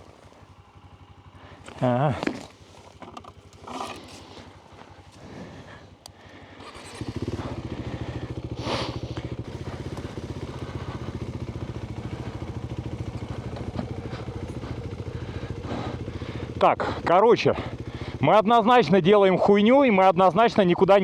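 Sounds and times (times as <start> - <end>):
motorcycle engine starting and idling: 0.0 - 21.0.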